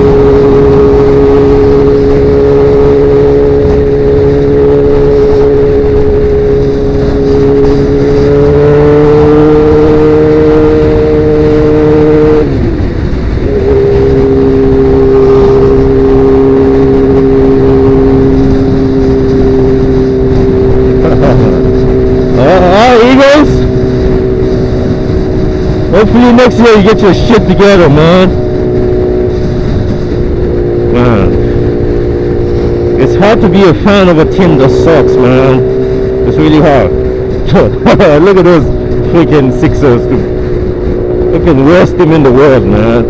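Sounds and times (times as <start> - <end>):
motorcycle engine cruising: 0.0 - 43.0.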